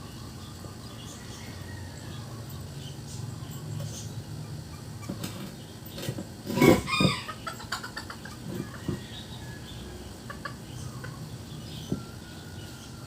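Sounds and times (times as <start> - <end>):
chicken calling: 6.5 - 13.0.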